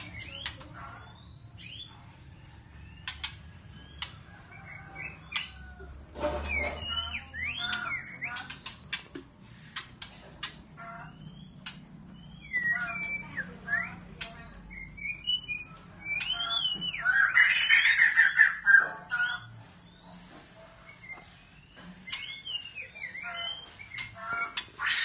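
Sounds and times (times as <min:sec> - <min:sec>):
bird calling with ticks and whistles: 0:00.0 - 0:02.0, 0:02.7 - 0:05.8, 0:06.4 - 0:18.6, 0:19.2 - 0:25.0.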